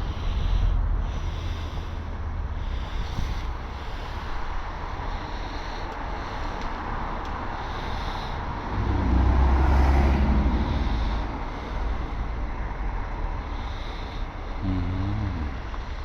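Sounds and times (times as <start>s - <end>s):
road noise: 0.0s - 16.0s
vehicle engine passing: 5.2s - 16.0s.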